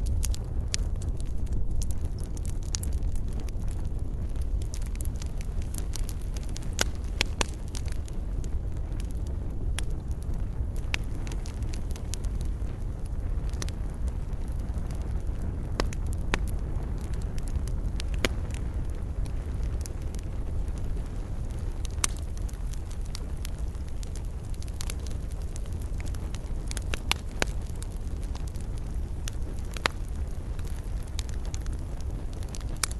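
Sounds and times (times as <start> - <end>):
campfire low rumble: 0.0 - 32.9
fire crackles and pops: 0.0 - 32.9.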